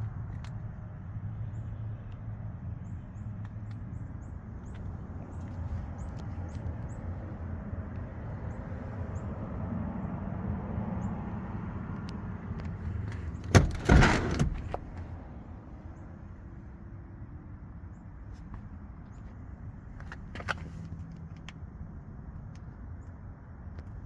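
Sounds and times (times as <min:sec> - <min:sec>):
car engine idling: 0:12.8 - 0:15.2
car door shutting: 0:13.2 - 0:15.1.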